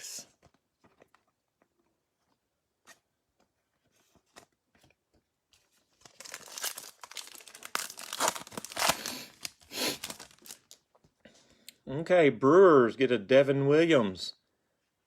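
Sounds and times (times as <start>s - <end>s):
wrapper tearing and crinkling: 6.0s - 10.8s.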